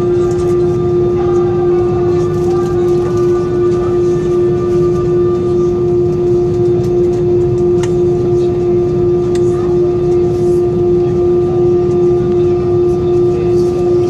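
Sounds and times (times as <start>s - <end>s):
jet engines rumbling in cabin: 0.0s - 14.0s.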